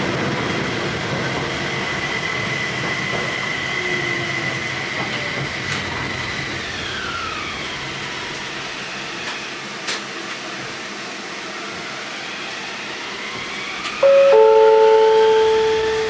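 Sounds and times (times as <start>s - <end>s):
wheels rumbling on track: 0.0s - 9.4s, 13.2s - 16.0s
tram motor whine: 0.0s - 9.5s, 11.8s - 16.0s.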